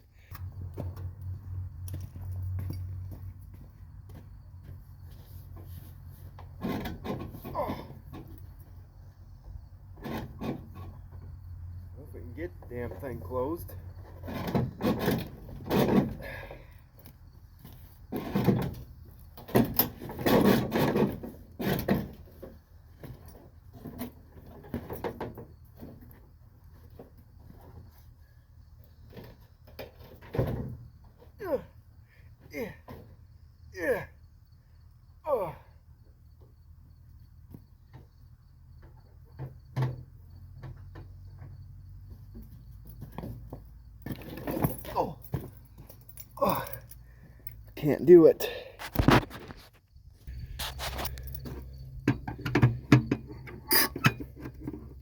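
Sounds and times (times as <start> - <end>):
crickets chirping: 0.0 - 55.0
truck hood banging and scraping: 3.5 - 11.5, 13.0 - 16.5, 17.6 - 28.2, 28.8 - 31.4, 38.8 - 45.9, 48.4 - 55.0
truck hood knocks and clunks: 38.8 - 45.6, 51.5 - 55.0.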